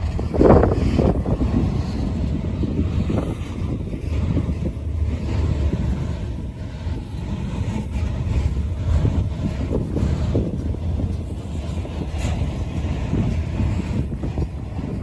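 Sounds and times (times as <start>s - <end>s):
freight train rolling past: 0.0s - 15.0s
wind buffeting microphone: 0.0s - 15.0s.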